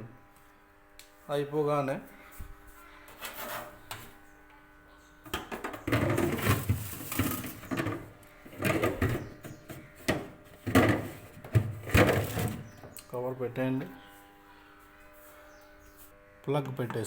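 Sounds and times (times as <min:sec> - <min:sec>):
plastic parts clattering: 0:05.6 - 0:08.0, 0:10.6 - 0:12.6.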